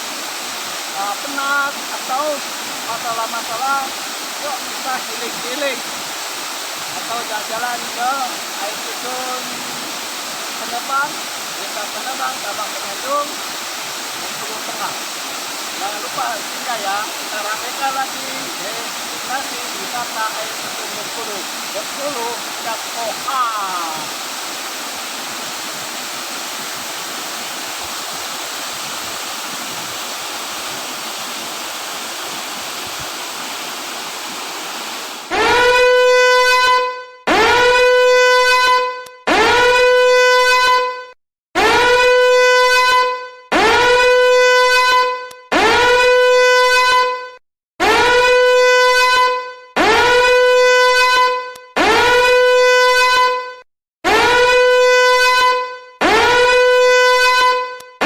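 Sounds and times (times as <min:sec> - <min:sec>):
waterfall rushing: 0:00.0 - 0:35.8
loud horn-like tone blasts: 0:35.3 - 0:58.0.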